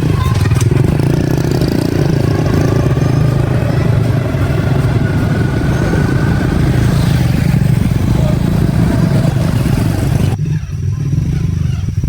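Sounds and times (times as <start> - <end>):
motorbike engine running: 0.0 - 12.0.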